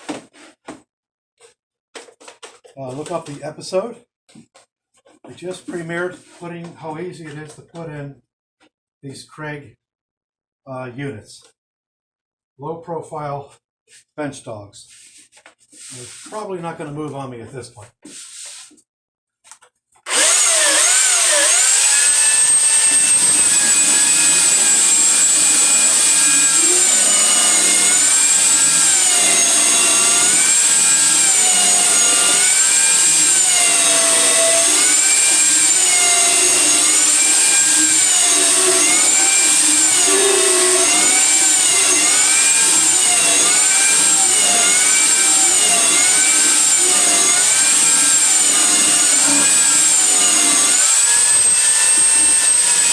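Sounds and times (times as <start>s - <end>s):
power sander on wood: 20.1s - 52.9s.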